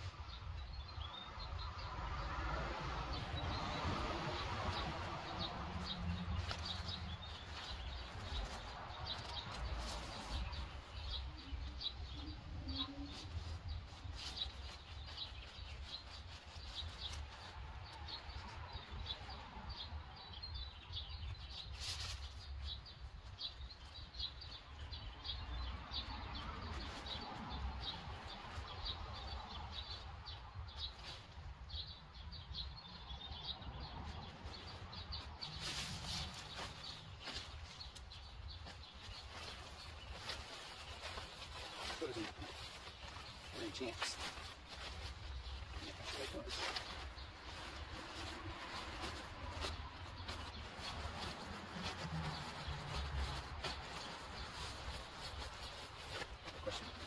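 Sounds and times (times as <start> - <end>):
small birds chirping: 0.0 - 57.0
tent fabric rustling: 4.3 - 19.4, 34.1 - 57.0.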